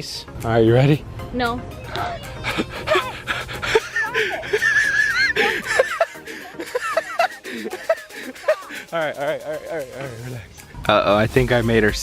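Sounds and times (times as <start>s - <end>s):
people laughing: 2.2s - 10.5s.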